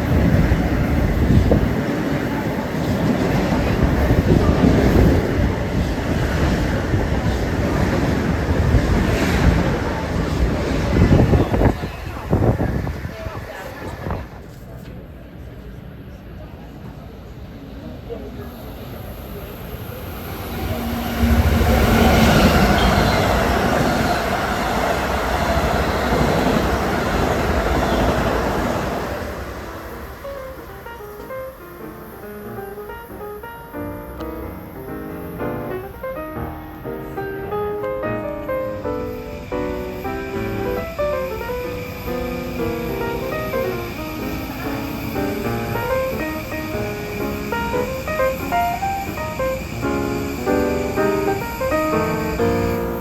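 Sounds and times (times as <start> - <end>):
wind buffeting microphone: 0.0 - 14.7, 19.5 - 30.6
electric train rumbling past: 0.0 - 53.0.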